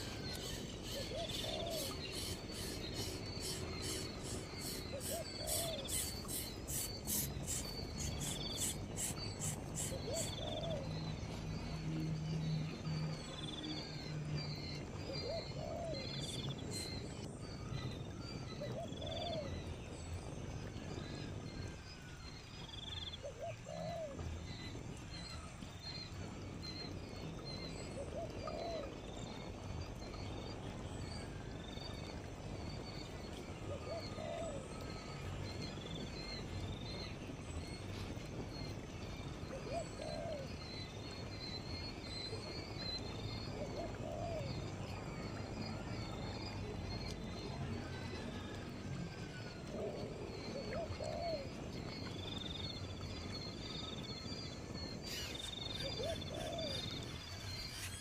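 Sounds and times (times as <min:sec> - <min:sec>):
bird hooting low: 0:00.0 - 0:10.8, 0:55.0 - 0:58.0.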